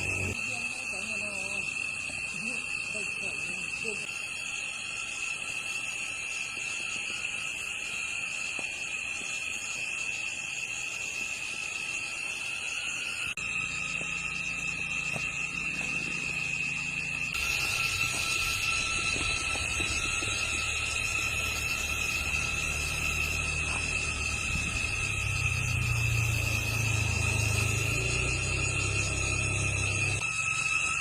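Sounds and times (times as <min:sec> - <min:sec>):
insects chirring: 0:00.0 - 0:31.0
low rumble: 0:17.4 - 0:30.2.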